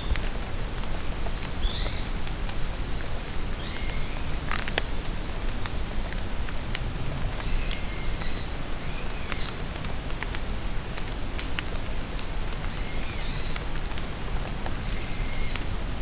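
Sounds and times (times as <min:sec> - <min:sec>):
songbirds chirping and trilling: 0:00.0 - 0:05.5
raindrops ticking: 0:00.0 - 0:15.8
rain falling in forest: 0:00.0 - 0:16.0.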